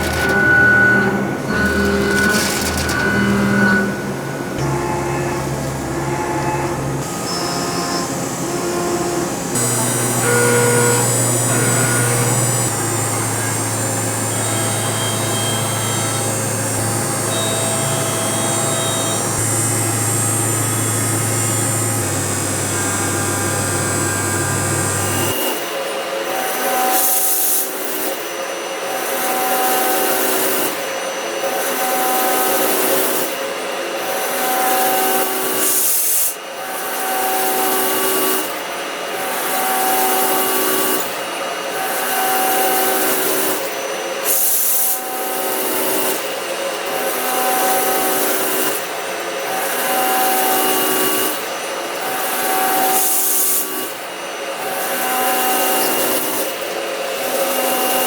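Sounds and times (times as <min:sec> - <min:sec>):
machine tool cutting metal: 0:00.0 - 0:25.6.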